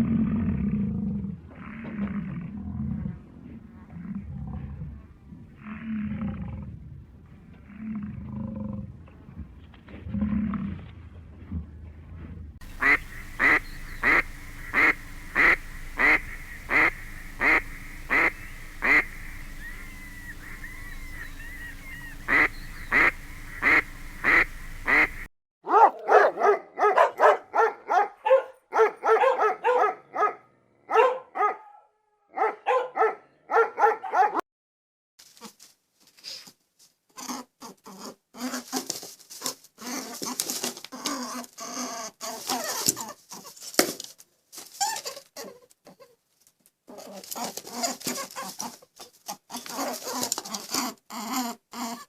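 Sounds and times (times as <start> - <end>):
animal honking calls: 12.6 - 25.3
short animal calls: 12.6 - 25.3
steady hum: 12.6 - 25.3.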